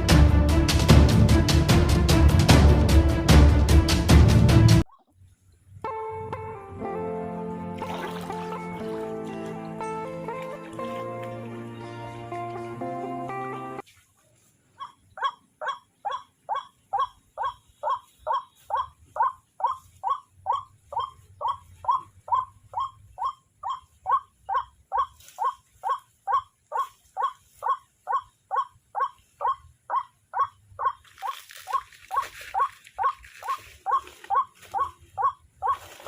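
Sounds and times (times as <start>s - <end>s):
waterhen calling harsh notes: 14.8s - 36.0s.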